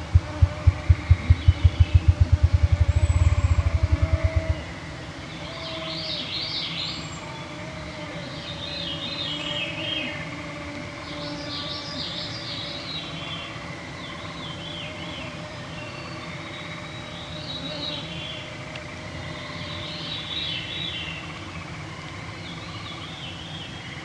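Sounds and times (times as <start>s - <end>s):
grouse drumming: 0.0s - 4.6s
songbirds singing: 0.0s - 4.6s.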